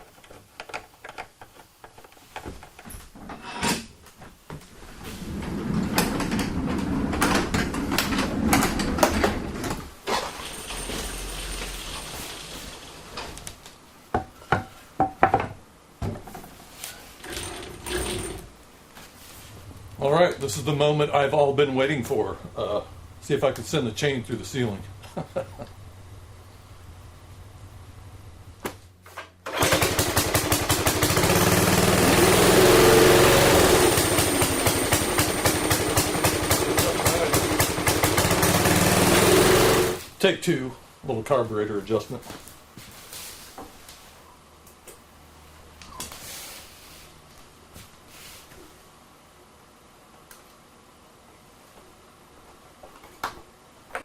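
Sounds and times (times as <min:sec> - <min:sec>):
go kart engine running: 0:29.5 - 0:40.0.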